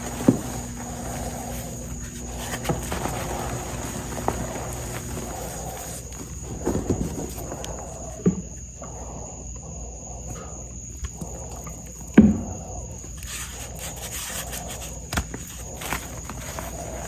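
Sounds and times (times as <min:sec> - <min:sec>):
chalk crunching: 0:00.0 - 0:08.0, 0:13.1 - 0:17.0.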